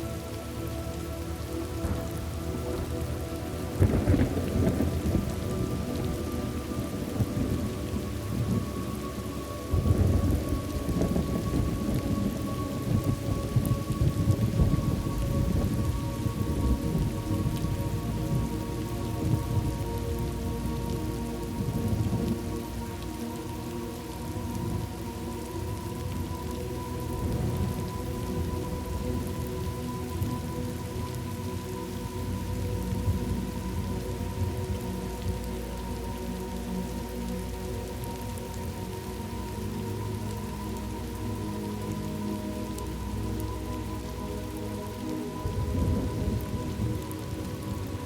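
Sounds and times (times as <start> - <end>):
steady rain falling: 0.0 - 48.0
rolling thunder: 3.7 - 8.7, 9.7 - 18.0.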